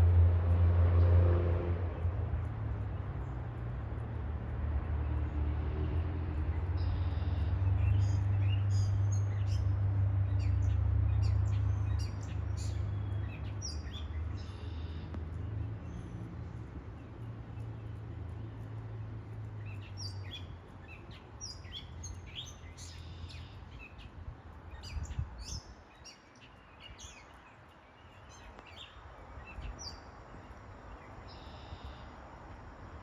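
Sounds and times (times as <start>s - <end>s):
high bird chirps: 19.6s - 24.1s, 31.1s - 32.1s.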